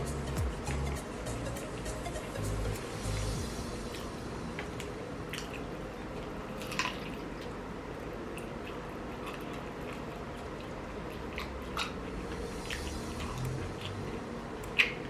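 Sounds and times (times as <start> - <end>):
wet chewing and smacking: 3.2 - 15.0.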